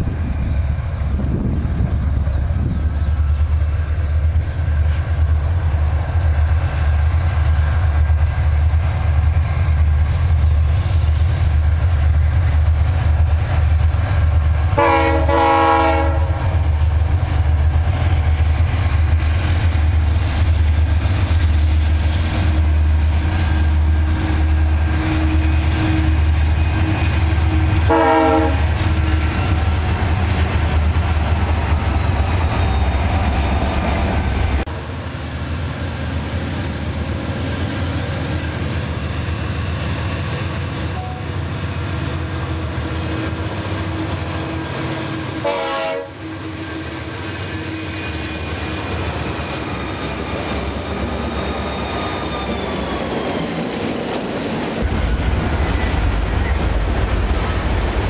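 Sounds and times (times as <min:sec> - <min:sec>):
locomotive engines rumbling: 0:00.0 - 0:58.0
locomotive air horn: 0:14.8 - 0:16.6, 0:25.0 - 0:29.5, 0:44.8 - 0:46.4.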